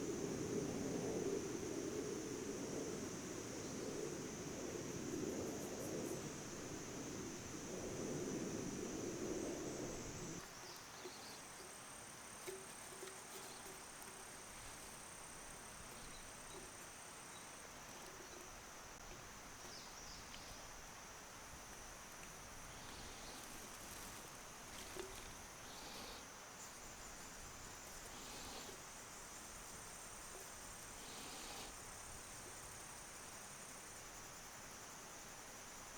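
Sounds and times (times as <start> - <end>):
higher insect tone: 0.0 - 33.6
crickets chirring: 0.0 - 35.9
faint ticks: 21.7 - 26.1.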